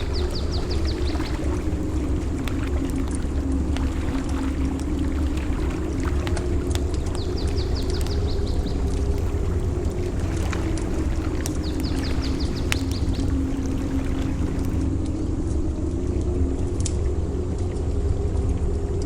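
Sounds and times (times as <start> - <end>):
bird trilling: 0.0 - 3.6, 5.5 - 14.8
campfire crackling and popping: 0.0 - 14.8
low rumble of surf: 0.0 - 19.0.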